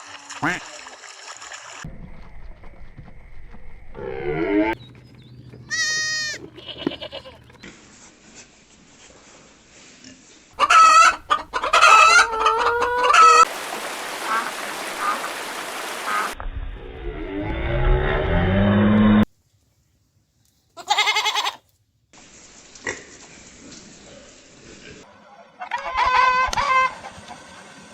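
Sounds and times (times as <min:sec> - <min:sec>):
background noise: 0:06.0 - 0:14.4, 0:16.7 - 0:27.9
chickens squawking and clucking: 0:10.6 - 0:16.4, 0:25.0 - 0:27.6.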